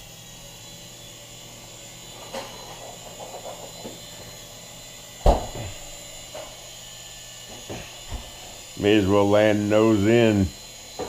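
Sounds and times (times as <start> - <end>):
toy helicopter rotors whining: 0.0 - 11.0
loud thump: 5.2 - 5.8.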